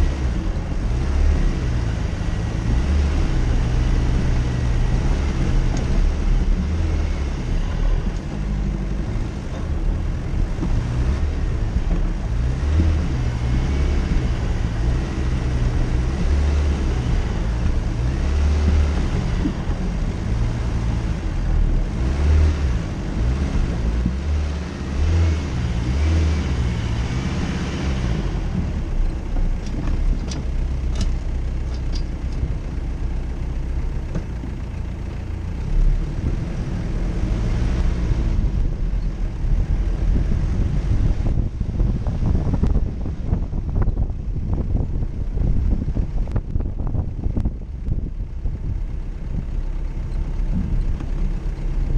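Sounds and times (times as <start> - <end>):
car engine rumbling: 0.0 - 51.9.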